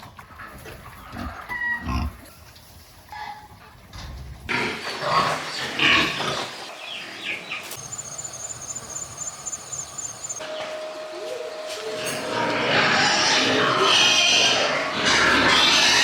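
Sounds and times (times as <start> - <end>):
pigs calling: 4.5 - 10.7, 11.3 - 16.0.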